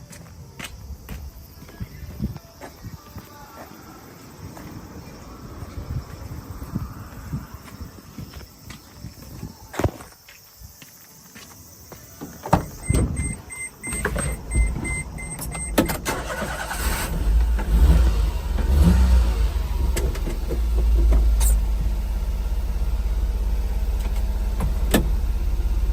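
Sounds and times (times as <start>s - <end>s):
ignition clicks: 12.5s - 18.0s, 23.9s - 25.3s
short warning beeps: 12.6s - 15.9s
truck engine starting and idling: 12.6s - 25.9s.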